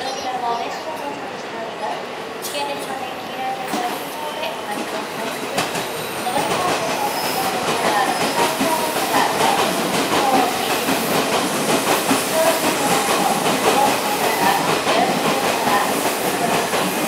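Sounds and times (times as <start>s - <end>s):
electric train slowing: 3.6s - 17.0s.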